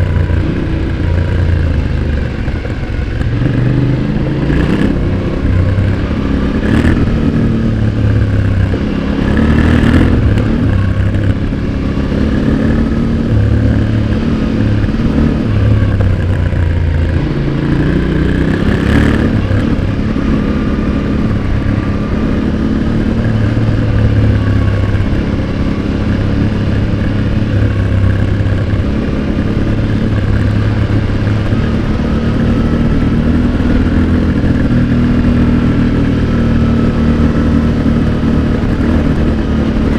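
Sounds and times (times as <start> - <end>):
motorcycle exhaust revving: 0.0 - 39.9.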